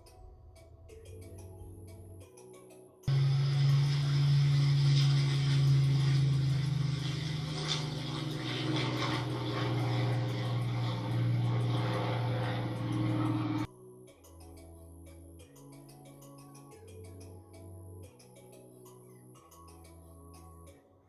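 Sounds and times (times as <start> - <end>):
propeller aircraft engine droning: 3.1 - 13.7.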